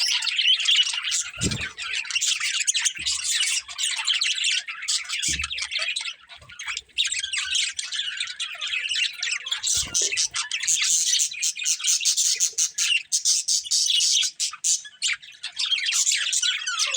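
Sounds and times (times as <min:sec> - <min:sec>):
budgerigars chattering: 0:00.0 - 0:16.9.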